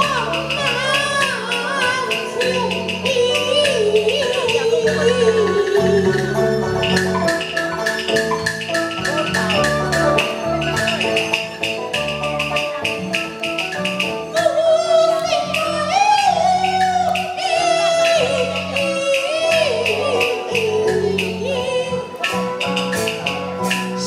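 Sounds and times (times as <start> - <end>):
person singing with wavering voice: 0.0 - 7.1, 14.3 - 22.6
opera ensemble playing: 0.0 - 24.0
rapid percussion strikes: 0.0 - 24.0.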